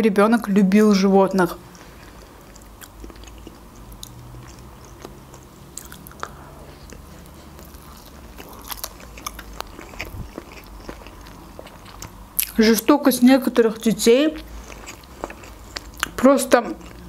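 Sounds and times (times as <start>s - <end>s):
faint low hum: 0.0s - 17.0s
wet chewing with smacks: 2.4s - 12.6s.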